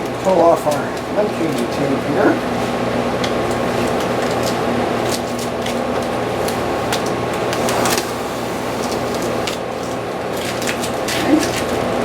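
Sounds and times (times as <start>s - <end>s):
machine hum: 6.3s - 10.8s.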